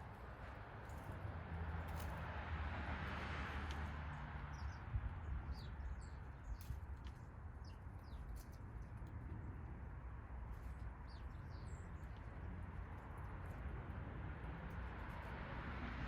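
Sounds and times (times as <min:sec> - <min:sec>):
songbirds chirping: 0:03.6 - 0:14.2.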